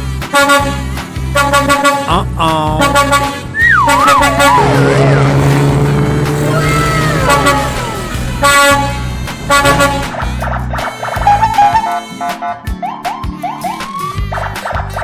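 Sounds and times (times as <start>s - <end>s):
honk-like blast: 0.3s - 2.1s, 2.8s - 12.6s
low horn-like tone: 2.8s - 10.4s
wobbling falling whistle: 3.6s - 5.3s
falling glides: 3.6s - 10.4s.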